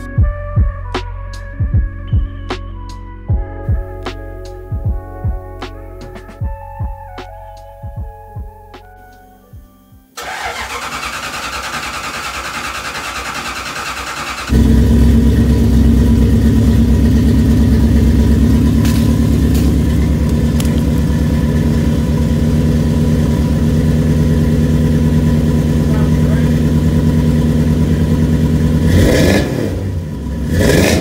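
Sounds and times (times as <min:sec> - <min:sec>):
engine starter cranking: 0:10.2 - 0:14.8
engine idling rumble: 0:10.2 - 0:29.1.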